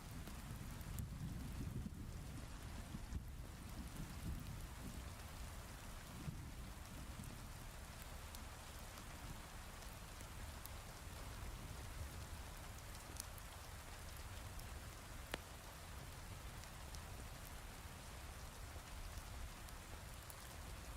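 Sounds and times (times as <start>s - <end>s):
faint sharp crackles: 8.0s - 20.9s.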